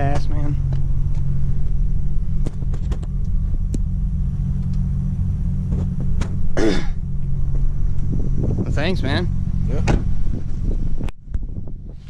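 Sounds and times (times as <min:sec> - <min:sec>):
vehicle engine idling: 0:00.0 - 0:12.0
person coughing: 0:06.6 - 0:07.0.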